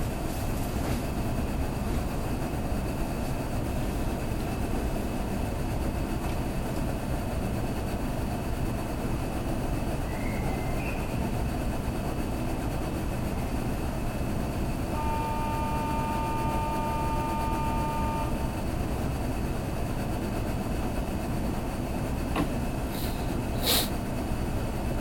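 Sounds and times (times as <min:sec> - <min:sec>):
train cabin rumble and hiss: 0:00.0 - 0:25.0
high-pitched tone: 0:15.0 - 0:18.5.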